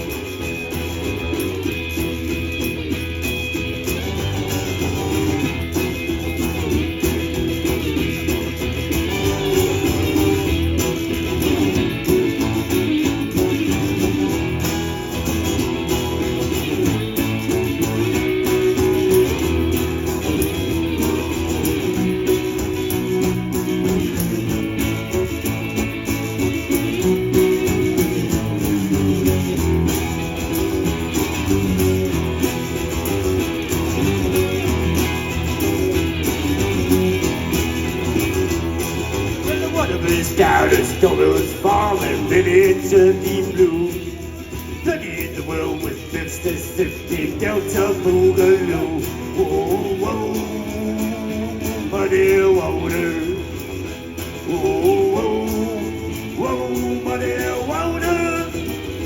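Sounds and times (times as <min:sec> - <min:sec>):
blues guitar playing: 0:00.0 - 0:59.0.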